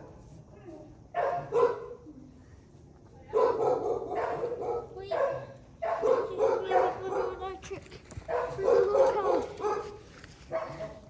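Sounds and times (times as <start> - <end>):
dog barking: 1.2 - 2.0, 3.3 - 7.6, 8.3 - 11.0.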